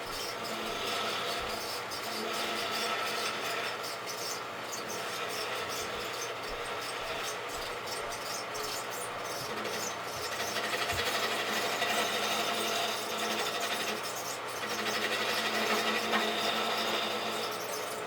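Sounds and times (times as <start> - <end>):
chisel cutting spinning wood: 0.0 - 18.0
wood lathe running: 0.0 - 18.0.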